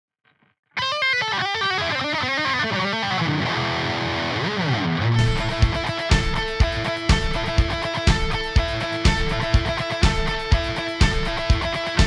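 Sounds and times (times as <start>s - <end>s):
electric guitar rock melody: 0.8s - 12.0s
drum kit steady beat: 5.2s - 12.0s.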